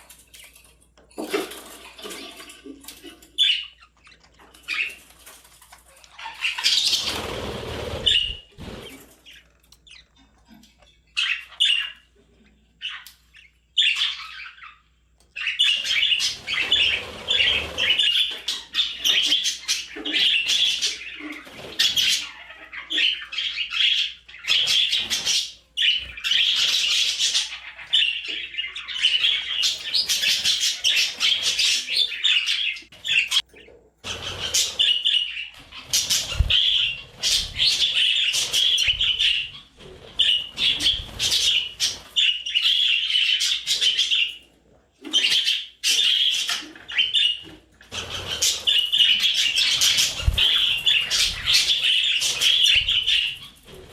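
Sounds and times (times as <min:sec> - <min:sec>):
budgerigar chirping and chattering: 0:45.0 - 0:53.6.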